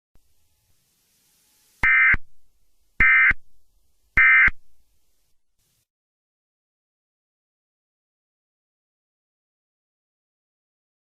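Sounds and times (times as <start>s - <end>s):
buzzy digital tone bursts: 0.3s - 2.2s, 3.0s - 3.4s, 4.2s - 4.6s.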